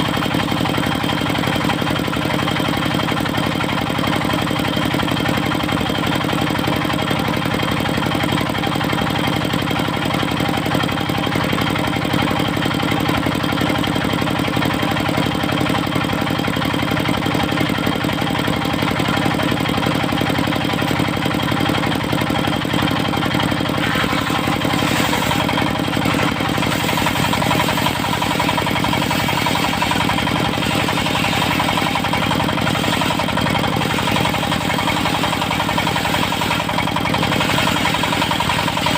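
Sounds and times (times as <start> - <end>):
sawmill engine running: 0.0 - 38.9
harsh hissy sound: 23.7 - 36.6.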